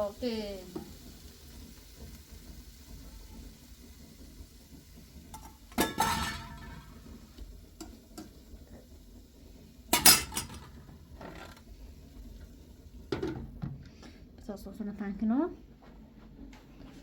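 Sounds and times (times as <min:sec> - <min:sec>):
metal kitchenware clattering: 0:05.3 - 0:07.0, 0:09.9 - 0:11.6.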